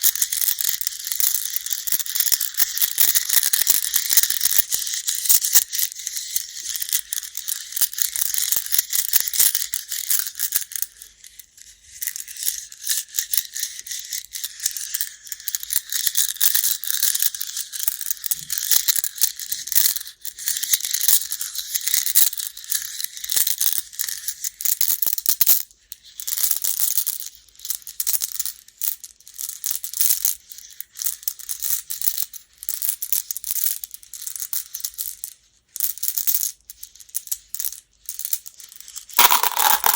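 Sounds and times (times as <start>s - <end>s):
game stones clattering: 39.2s - 39.9s.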